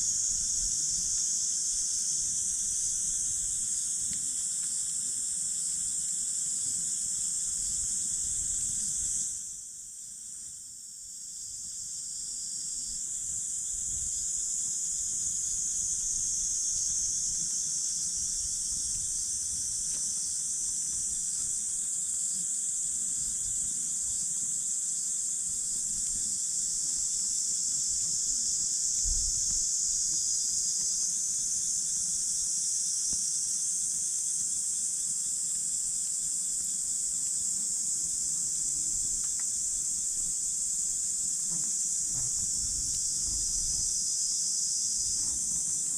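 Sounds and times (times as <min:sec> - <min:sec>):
insects trilling: 0:00.0 - 0:45.9.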